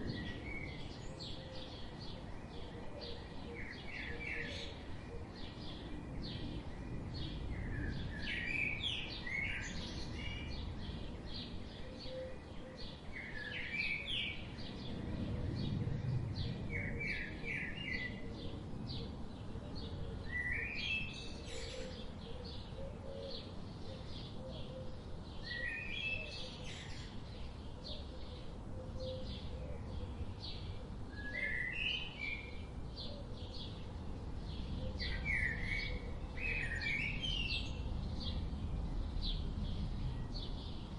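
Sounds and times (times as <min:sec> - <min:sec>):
low outdoor hum: 0:00.0 - 0:20.5.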